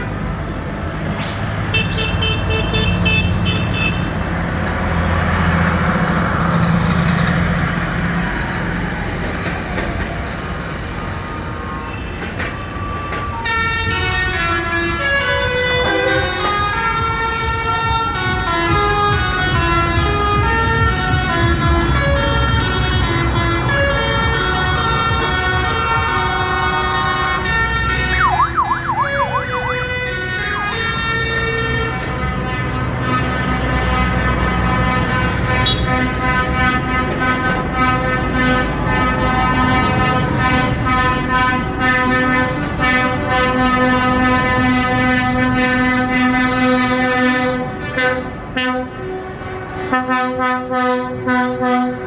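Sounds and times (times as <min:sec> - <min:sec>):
lorry and tractor engines rumbling: 0:00.0 - 0:52.0
vehicle horn: 0:01.7 - 0:04.2, 0:13.8 - 0:49.2, 0:49.8 - 0:52.0
tune of held notes: 0:15.8 - 0:16.6, 0:28.2 - 0:30.0.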